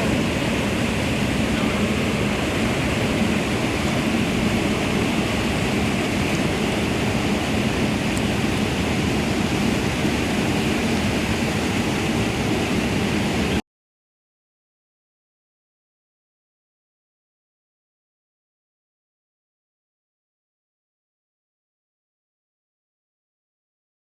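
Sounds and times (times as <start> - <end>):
steady rushing noise: 0.0 - 13.6.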